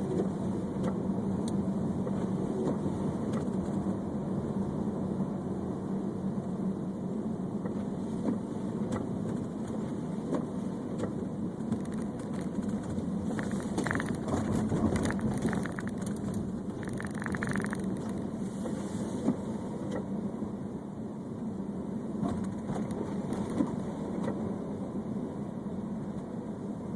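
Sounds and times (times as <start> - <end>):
car engine and road noise: 0.0 - 26.9
crackling clicks: 11.6 - 18.3.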